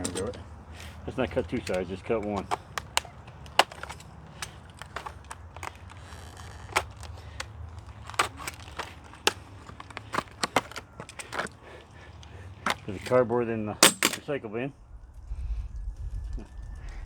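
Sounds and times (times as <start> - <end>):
knife cutting plastic packaging: 0.0 - 11.6
plastic cracking and crinkling: 0.0 - 13.2.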